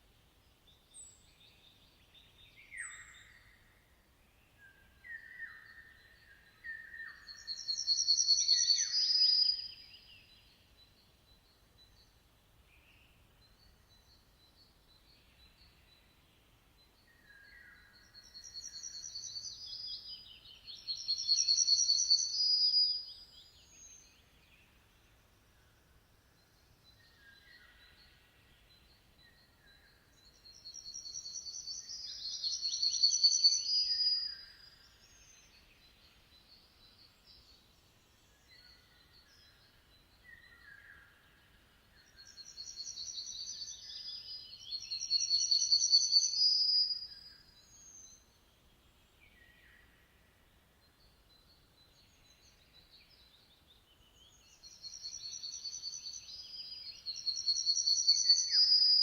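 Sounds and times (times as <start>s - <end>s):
soft bird chirps: 0.0s - 59.0s
songbird trilling: 57.2s - 59.0s.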